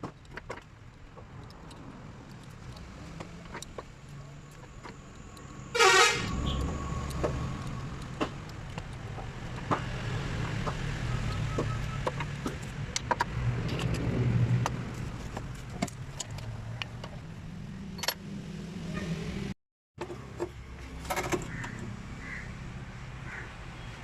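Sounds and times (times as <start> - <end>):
car horn toot: 5.7 - 6.6.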